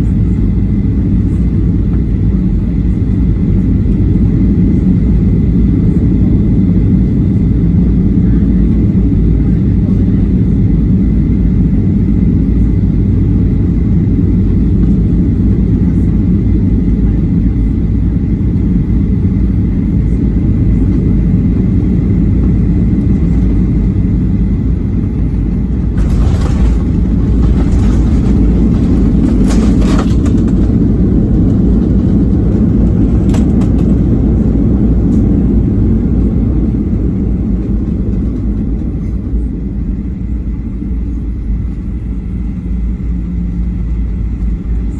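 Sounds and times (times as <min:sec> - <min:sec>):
airplane cabin low rumble: 0:00.0 - 0:44.9
rattles and clicks: 0:25.7 - 0:32.2.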